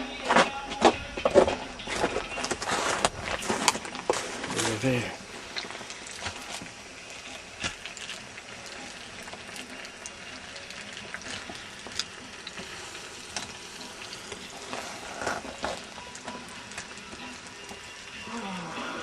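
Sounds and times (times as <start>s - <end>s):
hot oil sizzling in a fryer: 3.8s - 19.0s
sharp oil pops and crackles: 5.5s - 17.8s.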